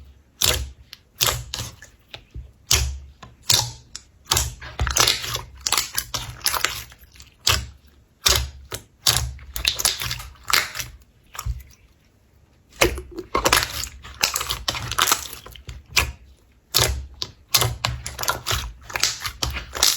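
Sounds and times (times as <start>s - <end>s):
slime crackling and popping: 16.7s - 19.9s.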